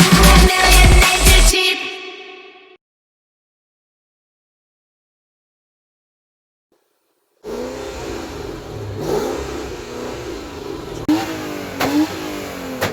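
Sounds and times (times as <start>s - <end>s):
car engine revving: 7.4s - 12.9s.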